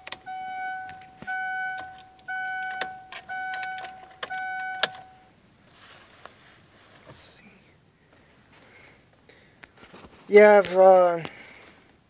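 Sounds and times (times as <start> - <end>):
car warning chime beeping: 0.0 - 5.4.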